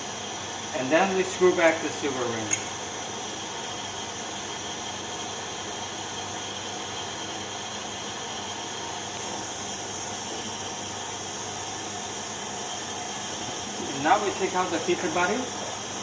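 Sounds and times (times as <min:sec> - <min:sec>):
steady background hiss: 0:09.2 - 0:16.0.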